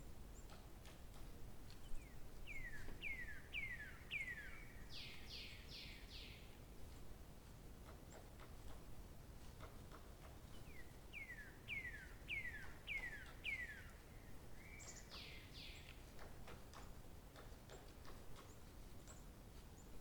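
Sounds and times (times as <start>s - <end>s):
faint outdoor background noise: 0.0s - 20.0s
songbird singing: 1.8s - 6.5s, 10.5s - 16.3s.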